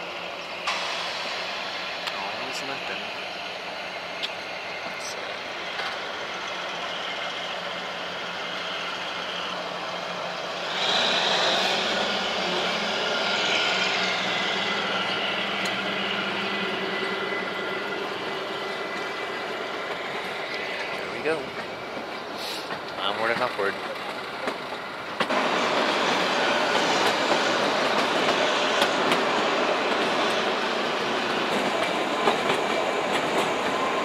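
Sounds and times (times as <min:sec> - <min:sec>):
train rumbling and rattling: 0:00.0 - 0:34.0.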